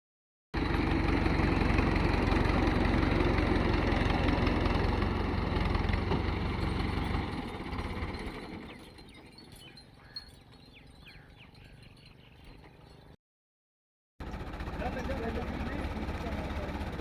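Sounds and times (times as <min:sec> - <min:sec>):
diesel tractor engine running: 0:00.6 - 0:13.2, 0:14.2 - 0:17.0.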